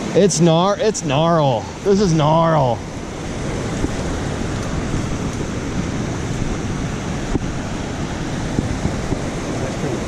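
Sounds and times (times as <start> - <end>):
creek water rushing: 0.0 - 10.0.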